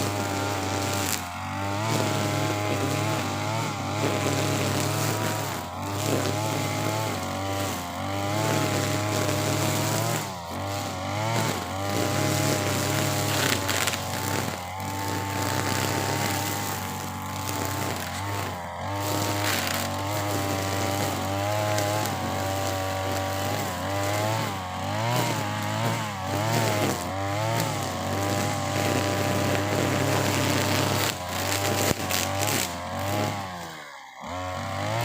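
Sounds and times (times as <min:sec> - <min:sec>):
brush cutter cutting grass: 0:00.0 - 0:35.0.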